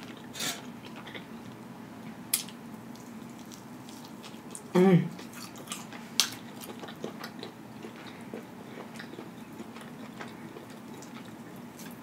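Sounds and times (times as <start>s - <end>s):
person chewing: 0.0s - 1.6s, 2.3s - 12.0s.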